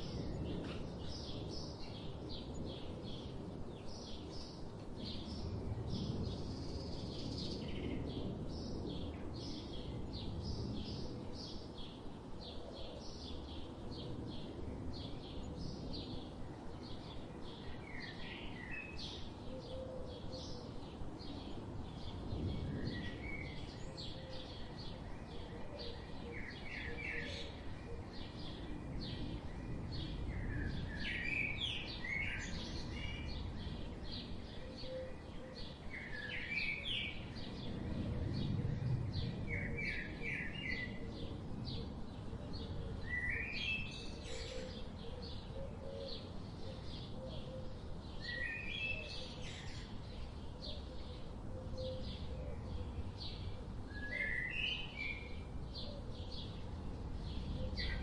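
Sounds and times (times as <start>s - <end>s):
songbirds chirping: 0.0s - 58.0s
bird song phrase: 41.8s - 56.6s.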